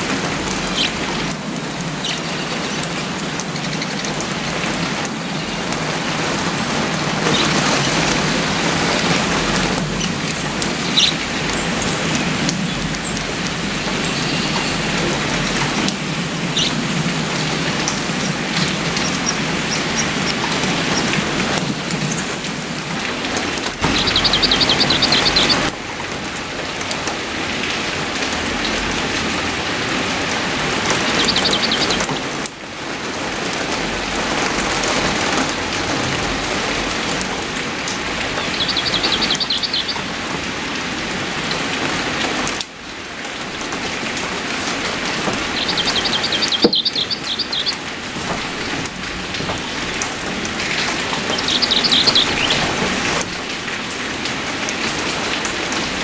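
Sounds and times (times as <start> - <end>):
heavy rain: 0.0 - 56.0
bird trilling: 23.9 - 25.6, 31.2 - 32.1, 38.4 - 40.1, 45.4 - 47.8, 51.3 - 52.7.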